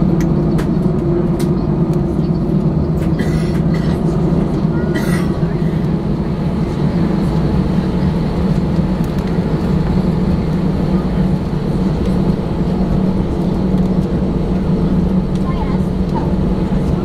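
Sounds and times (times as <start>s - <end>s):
airliner cabin engine hum: 0.0s - 17.0s.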